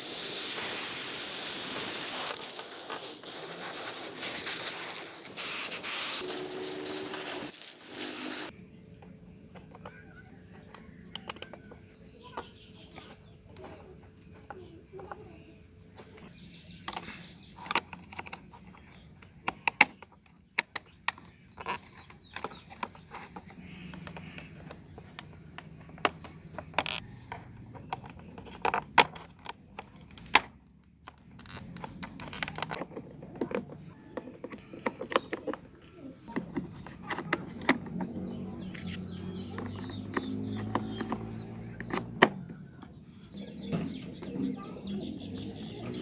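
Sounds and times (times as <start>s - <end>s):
tool scraping: 0.0s - 8.5s.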